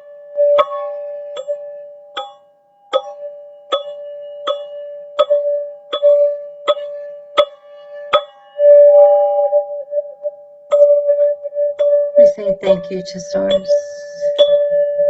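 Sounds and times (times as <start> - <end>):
tuned tube struck ringing: 0.0 - 9.8.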